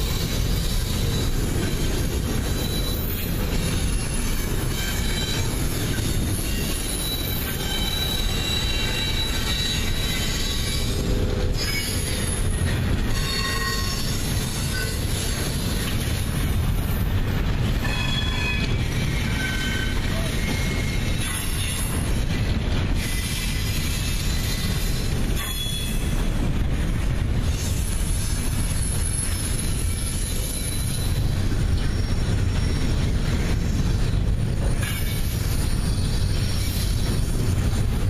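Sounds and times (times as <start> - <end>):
high-pitched wheel squeals: 0.0 - 15.8, 17.8 - 22.0, 23.0 - 26.2
train wheels rumbling on rail: 0.0 - 38.0.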